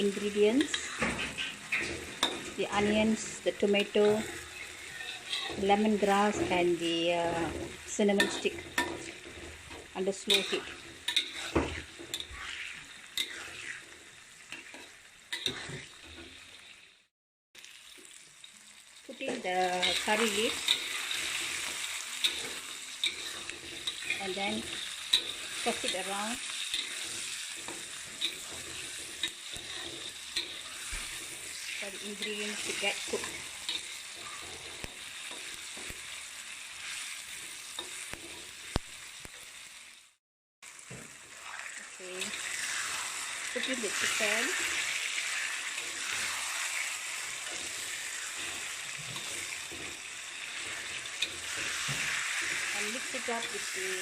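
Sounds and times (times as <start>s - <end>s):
vegetables sizzling in oil: 0.0s - 54.0s
utensil clicking on pan: 8.2s - 12.3s, 19.3s - 31.4s.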